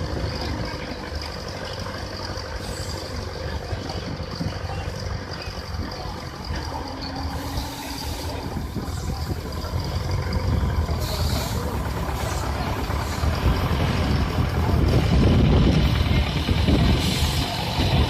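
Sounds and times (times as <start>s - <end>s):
steam tractor rumbling: 0.0s - 18.0s
steam hiss: 7.3s - 9.2s, 11.0s - 13.4s, 16.9s - 18.0s.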